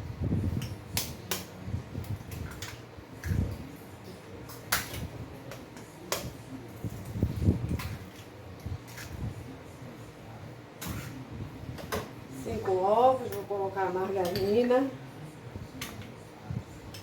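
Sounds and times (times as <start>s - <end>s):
bowls and utensils knocking: 14.2s - 14.8s.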